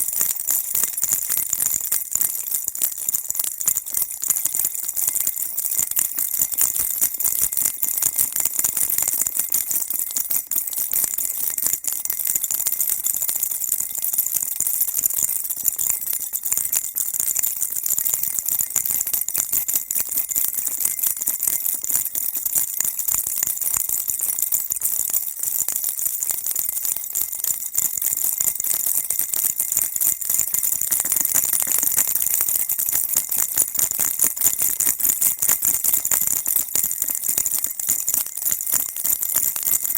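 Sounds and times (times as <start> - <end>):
baby rattle shaken: 0.0 - 3.0, 22.6 - 25.9, 28.2 - 39.9.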